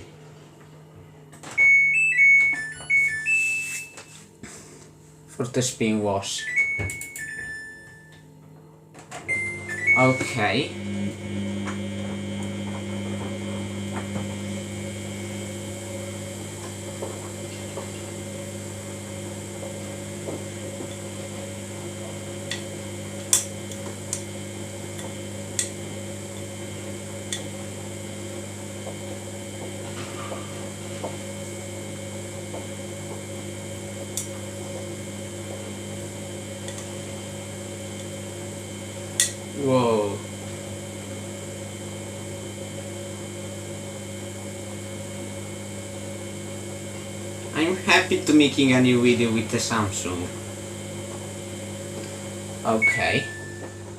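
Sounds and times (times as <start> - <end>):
washing machine humming: 0.0 - 53.9.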